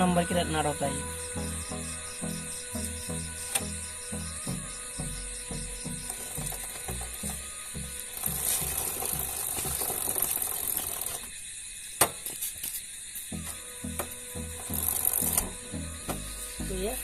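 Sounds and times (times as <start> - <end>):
mechanical ratcheting: 8.1 - 11.3.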